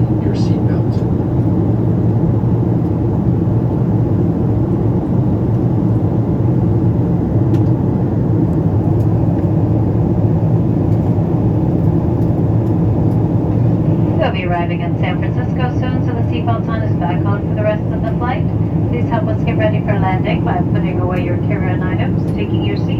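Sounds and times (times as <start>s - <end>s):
airliner cabin engine drone: 0.0s - 22.9s.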